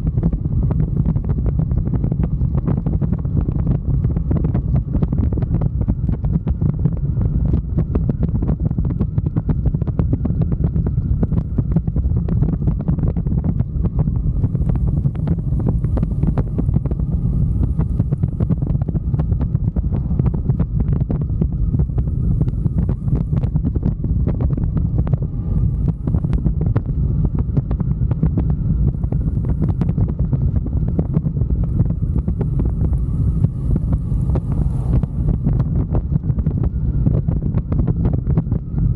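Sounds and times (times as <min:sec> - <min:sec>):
wind buffeting microphone: 0:00.0 - 0:38.9
motorcycle engine running: 0:13.6 - 0:38.0.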